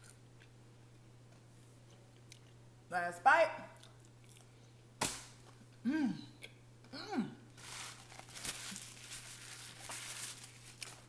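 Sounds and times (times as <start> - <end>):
person chewing: 1.3 - 2.6, 3.8 - 4.7
person humming with enjoyment: 5.8 - 7.4.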